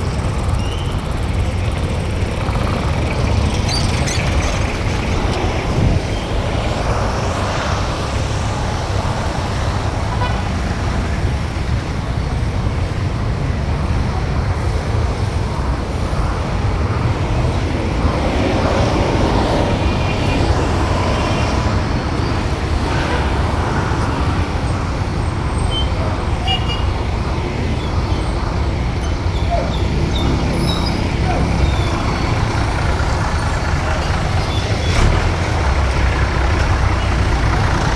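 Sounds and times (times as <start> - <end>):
vehicle and road rumble: 0.0 - 37.9.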